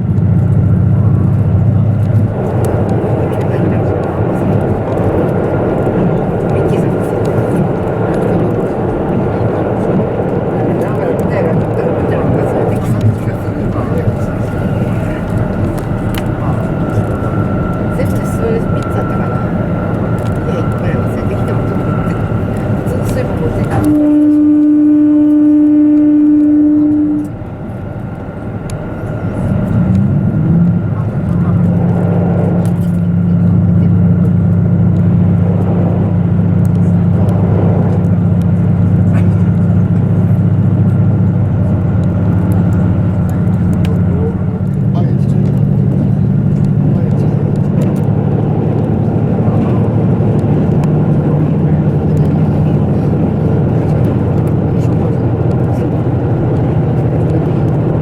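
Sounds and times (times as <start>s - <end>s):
diesel engine drone: 0.0s - 58.0s
train rumbling: 0.0s - 58.0s
wheel-on-rail noise: 0.0s - 58.0s
train horn blast: 19.0s - 27.8s.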